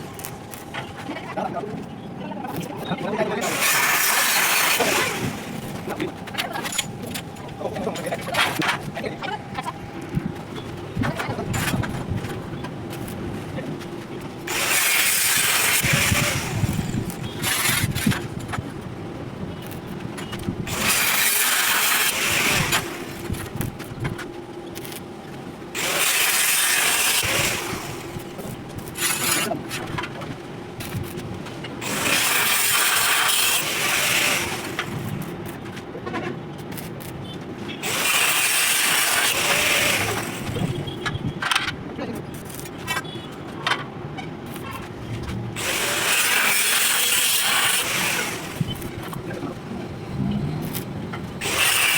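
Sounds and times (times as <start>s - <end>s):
arc welding crackling hiss: 0.0s - 0.8s, 3.4s - 6.1s, 14.4s - 18.8s, 19.4s - 25.1s, 25.7s - 35.6s, 36.6s - 41.0s, 42.2s - 43.0s, 45.6s - 51.9s.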